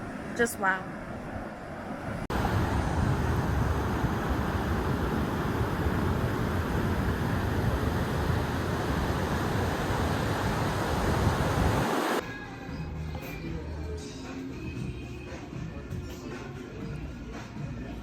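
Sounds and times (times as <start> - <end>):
ocean surf: 0.0 - 12.2
wind buffeting the microphone: 1.7 - 12.2
faint music: 12.2 - 18.0.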